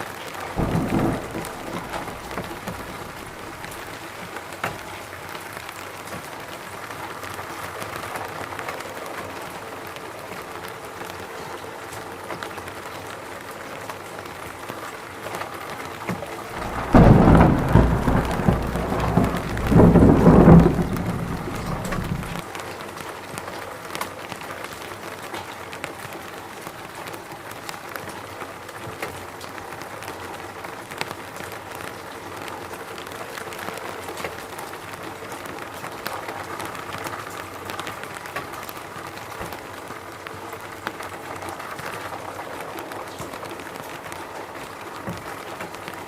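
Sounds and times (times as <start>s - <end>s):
steady rain falling: 0.0s - 46.0s
thunder rumble: 0.6s - 4.0s, 16.6s - 22.4s
raindrops ticking: 0.6s - 4.8s, 16.6s - 22.4s.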